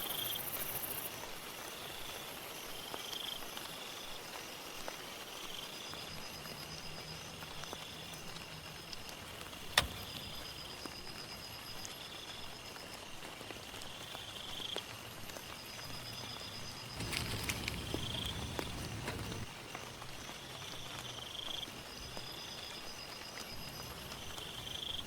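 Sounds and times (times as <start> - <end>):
insects trilling: 0.0 - 25.0
rain pattering: 0.1 - 25.0
sharp click: 9.7 - 10.6
rustling: 17.0 - 19.5.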